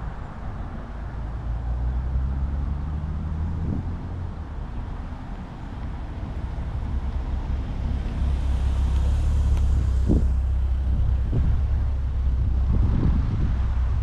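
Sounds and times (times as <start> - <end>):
car engine driving by: 5.8 - 14.0.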